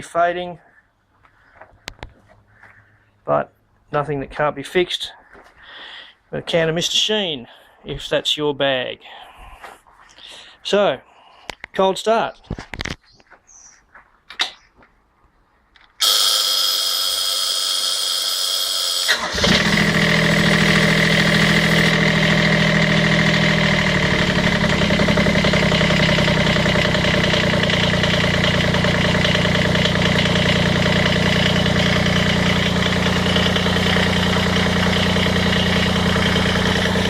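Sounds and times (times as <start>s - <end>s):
diesel engine cranking and starting: 16.0s - 37.0s
diesel engine idling: 19.1s - 37.0s.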